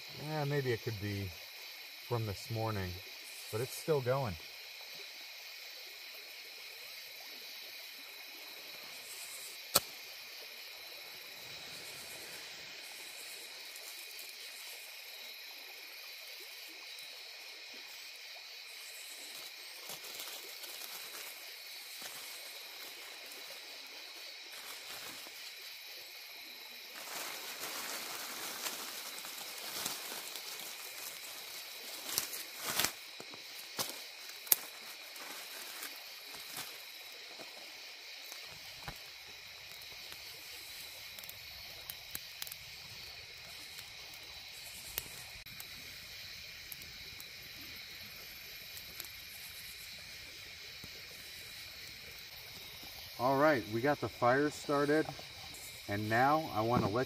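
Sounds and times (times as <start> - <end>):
faint river flow: 0.0 - 57.0
insect chorus: 0.0 - 57.0
kindling snapping and crackling: 9.7 - 10.0, 27.0 - 36.8
rustling: 19.8 - 25.7, 26.9 - 36.8.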